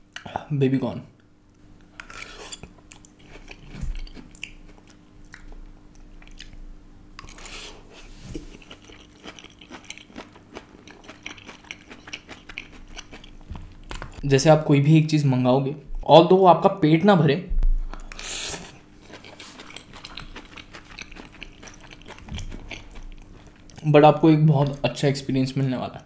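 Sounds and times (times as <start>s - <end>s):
person chewing noodles: 2.0s - 6.6s, 7.2s - 14.2s, 17.9s - 23.8s.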